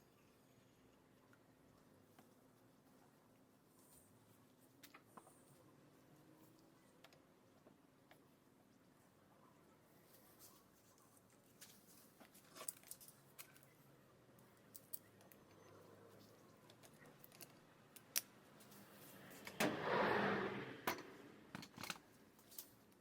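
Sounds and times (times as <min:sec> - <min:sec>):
small tools clicking and tapping: 0:16.6 - 0:18.8.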